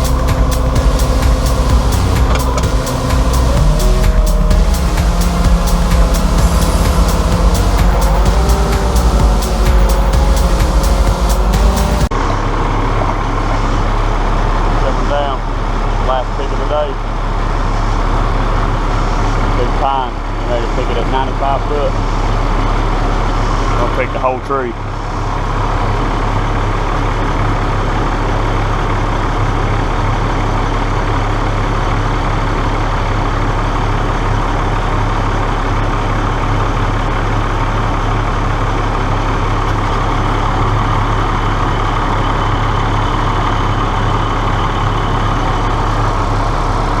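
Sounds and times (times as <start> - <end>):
heavy engine humming: 0.0 - 16.6.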